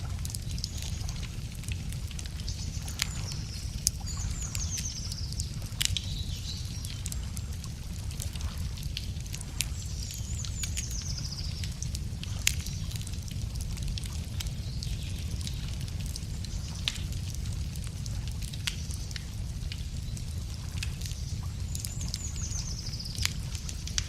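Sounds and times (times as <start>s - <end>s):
steady low rumble: 0.0s - 24.0s
wood fire crackling: 0.0s - 24.0s.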